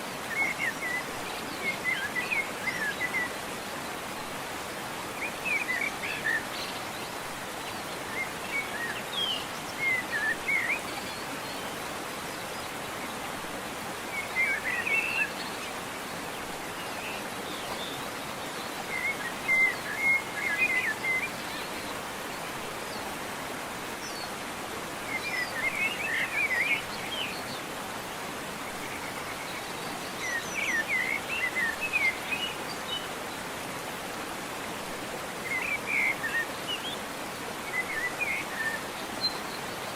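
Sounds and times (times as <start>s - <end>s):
waterfall rushing: 0.0s - 39.9s
songbird chirping: 5.1s - 22.2s, 28.5s - 33.6s.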